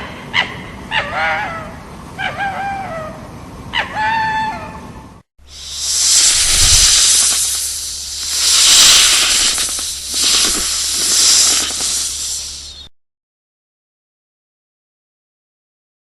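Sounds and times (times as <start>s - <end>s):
animal hissing: 5.4s - 12.9s.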